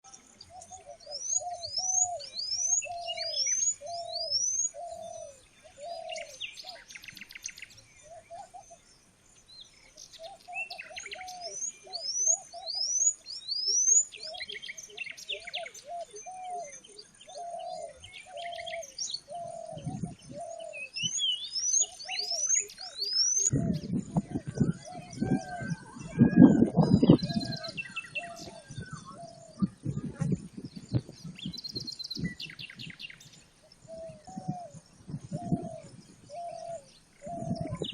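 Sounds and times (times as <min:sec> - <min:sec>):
high rising whistled bird notes: 0:00.4 - 0:09.0, 0:10.2 - 0:29.8.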